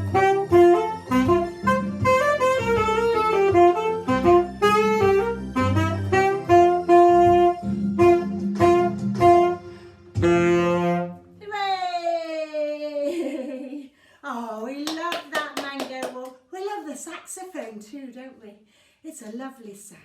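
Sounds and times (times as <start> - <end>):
backing track with bass: 0.0 - 11.1
saxophone melody: 0.0 - 11.4.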